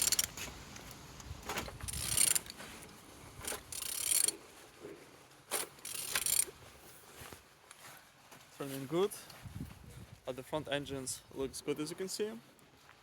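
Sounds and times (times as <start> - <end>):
engine turned by hand clicking: 0.0 - 4.4, 5.5 - 6.5.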